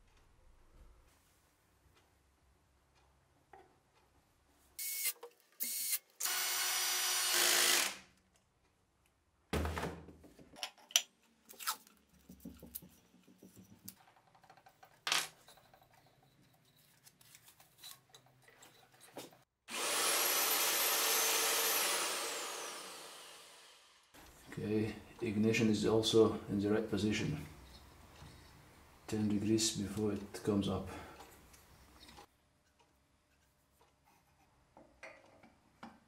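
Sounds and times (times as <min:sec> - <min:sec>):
power drill whirring: 0:04.8 - 0:08.1, 0:19.7 - 0:24.0.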